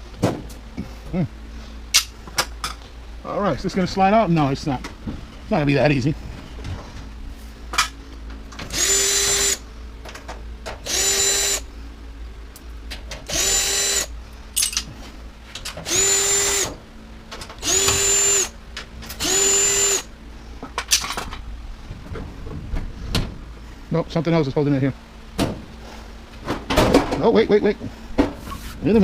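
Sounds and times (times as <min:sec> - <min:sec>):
cordless drill motor whine: 0:08.7 - 0:09.6, 0:10.8 - 0:11.7, 0:13.3 - 0:14.1, 0:15.8 - 0:16.8, 0:17.6 - 0:18.6, 0:19.2 - 0:20.1.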